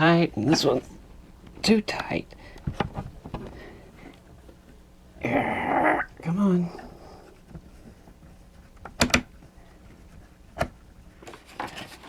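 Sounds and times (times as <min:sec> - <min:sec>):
plastic parts handled: 0:01.4 - 0:04.2.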